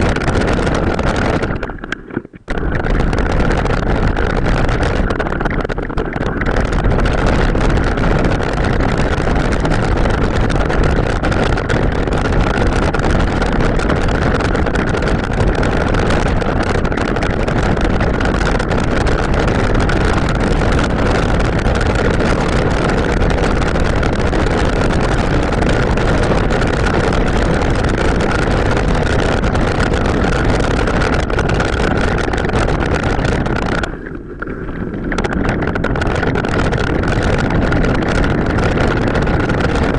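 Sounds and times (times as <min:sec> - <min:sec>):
bike tyres rolling off-road: 0:00.0 - 0:39.9
high whine: 0:00.0 - 0:39.9
wind buffeting microphone: 0:00.0 - 0:39.9.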